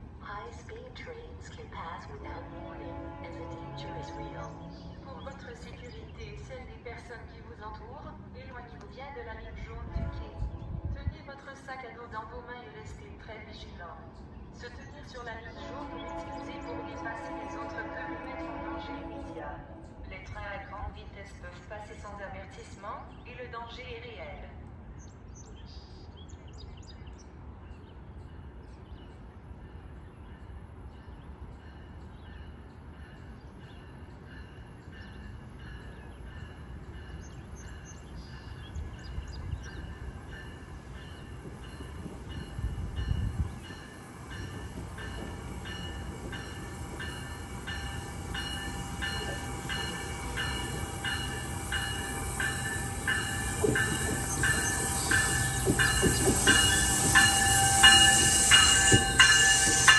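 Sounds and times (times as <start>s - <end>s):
commuter train approaching: 0.0s - 59.9s.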